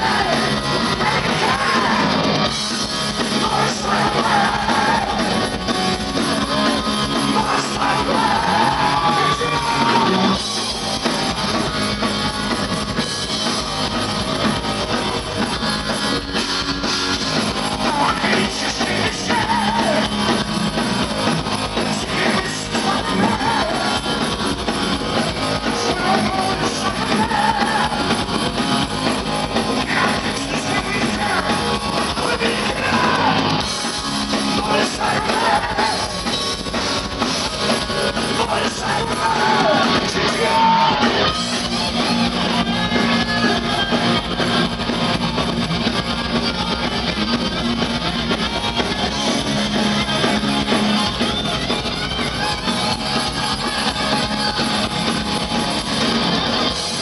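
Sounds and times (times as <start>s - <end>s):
sung vocals: 0.0s - 13.6s, 14.9s - 45.3s
heavy metal band playing live: 0.0s - 57.0s.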